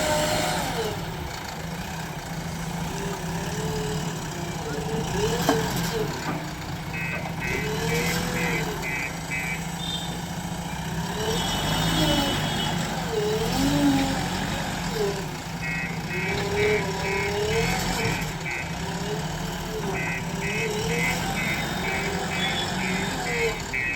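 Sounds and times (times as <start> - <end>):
heavy diesel engine running: 0.0 - 23.9
reversing alarm beeping: 6.9 - 10.2, 15.6 - 18.8, 19.8 - 23.9.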